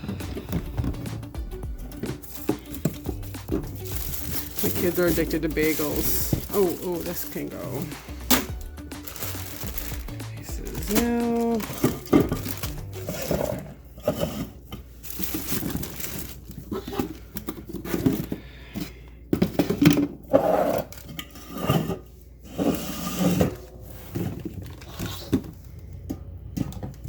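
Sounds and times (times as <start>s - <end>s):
bags crinkling: 0.0s - 18.3s
containers knocking and clattering: 0.0s - 21.2s, 23.3s - 27.0s.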